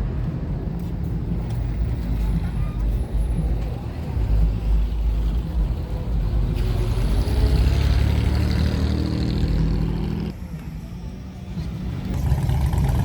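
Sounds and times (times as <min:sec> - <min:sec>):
car engine running at low revs: 0:11.9 - 0:13.0.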